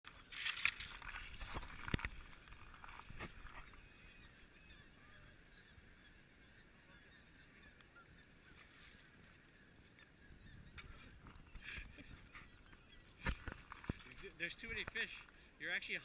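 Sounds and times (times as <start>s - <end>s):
faint bird calls: 3.3s - 15.6s.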